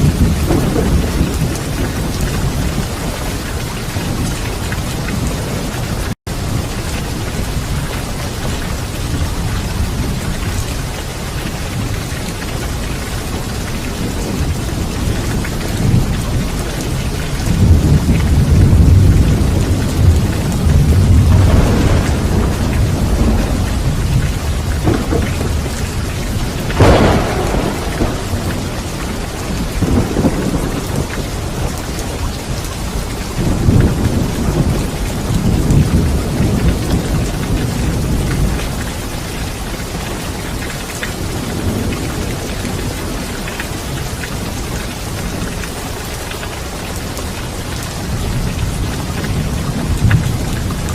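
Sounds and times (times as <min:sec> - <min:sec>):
sharp thunderclap: 0:00.0 - 0:06.7, 0:12.8 - 0:38.9
rolling thunder: 0:00.0 - 0:45.7
heavy rain: 0:00.0 - 0:50.9.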